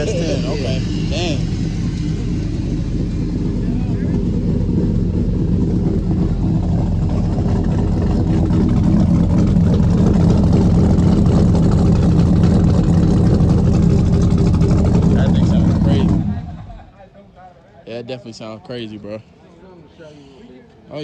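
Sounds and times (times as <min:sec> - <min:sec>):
vee eight engine idling loudly: 0:00.0 - 0:16.9.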